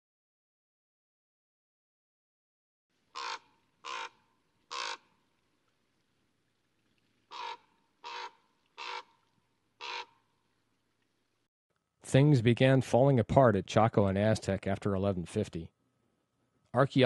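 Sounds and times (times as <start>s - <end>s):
bird cawing: 3.1s - 5.2s, 7.3s - 10.4s.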